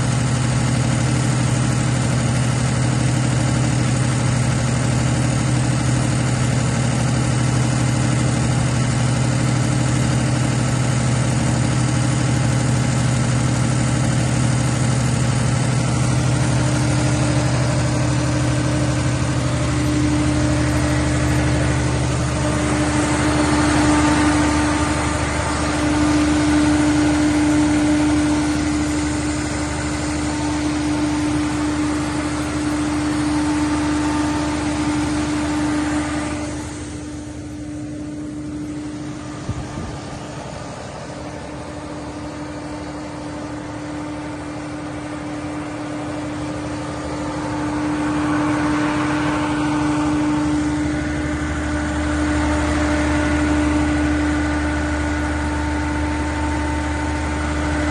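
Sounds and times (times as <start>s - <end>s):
diesel generator running: 0.0s - 57.9s
higher steady tone: 16.0s - 57.4s.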